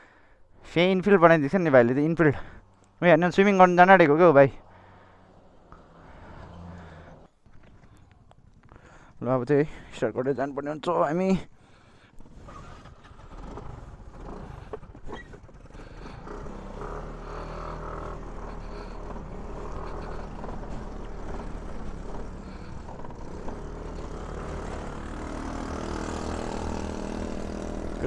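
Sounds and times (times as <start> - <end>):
scooter engine running: 3.8 - 9.2, 11.6 - 28.0.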